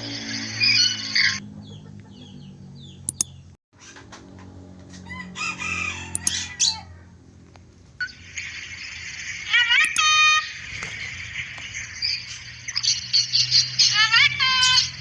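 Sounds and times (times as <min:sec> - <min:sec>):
bird chirps: 0:00.6 - 0:04.0, 0:06.1 - 0:06.8.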